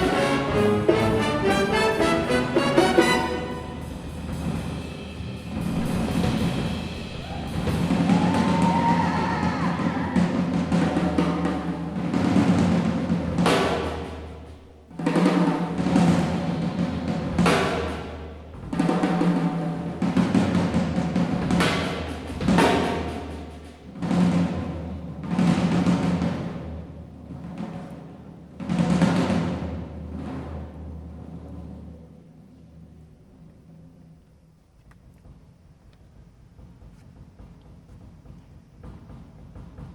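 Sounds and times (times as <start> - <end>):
jazz orchestra: 0.0 - 8.5, 10.2 - 32.9
cymbal crashes: 0.0 - 8.8
tom and bass drum rolls: 0.0 - 33.7.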